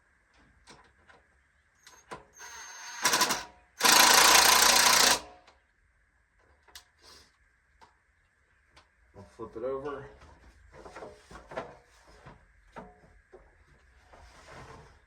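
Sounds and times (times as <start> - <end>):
cordless drill driving screws: 2.4 - 5.3.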